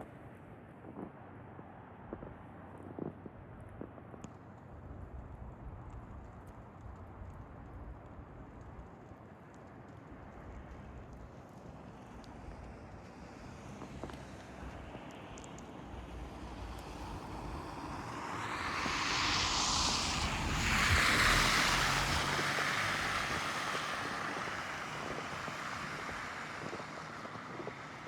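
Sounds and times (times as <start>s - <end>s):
vehicle tyres hissing on wet road: 9.9s - 28.0s.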